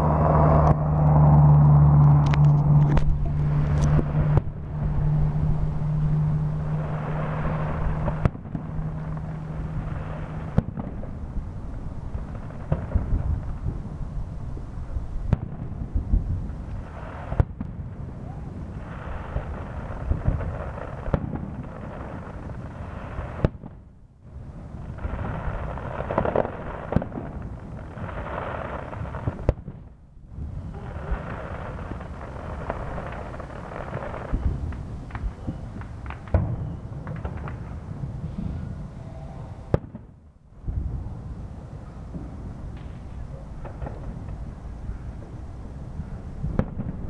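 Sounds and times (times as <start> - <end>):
continuous low rumble: 0.0 - 47.0
fireworks bangs: 0.0 - 47.0.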